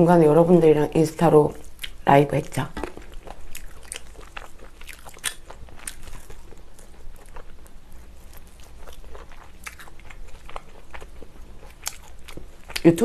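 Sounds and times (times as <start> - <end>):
person chewing fried chicken: 2.8 - 12.9.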